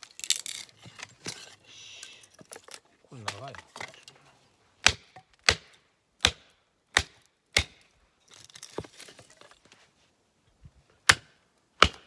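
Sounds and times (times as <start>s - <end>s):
hatchet striking log: 4.8s - 7.8s, 11.1s - 12.0s.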